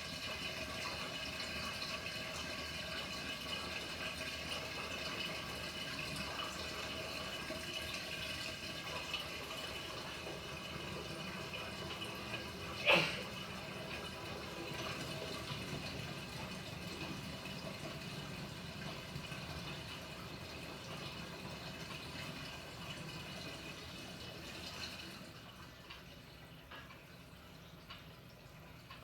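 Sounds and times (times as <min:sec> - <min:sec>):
water sloshing in washing machine: 0:00.0 - 0:29.0.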